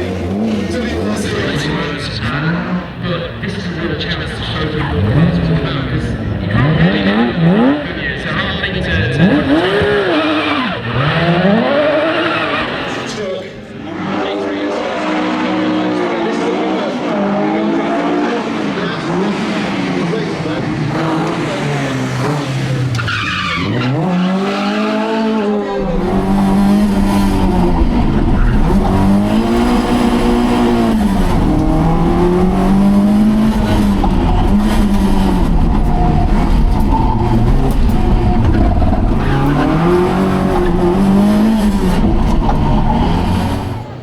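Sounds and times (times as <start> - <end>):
rally car engine revving: 0.0 - 44.0
tyres squealing: 21.2 - 44.0.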